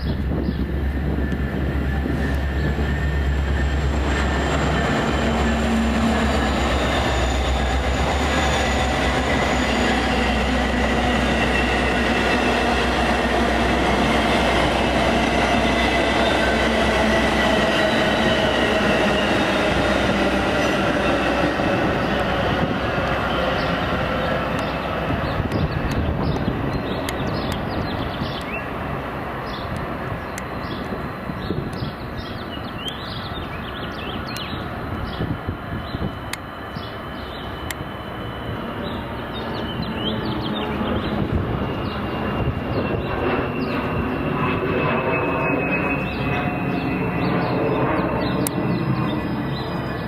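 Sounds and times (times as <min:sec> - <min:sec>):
diesel locomotive hum: 0:00.0 - 0:50.0
train wheels rumbling on rails: 0:00.0 - 0:50.0
high wheel squeal: 0:03.6 - 0:28.4.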